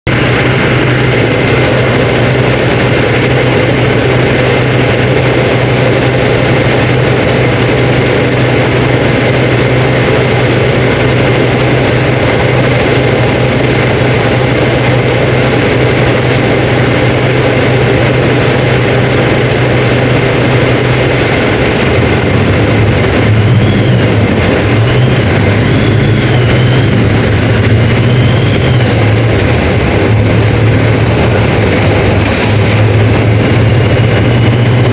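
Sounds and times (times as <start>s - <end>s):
bus diesel engine droning: 0.0s - 34.9s.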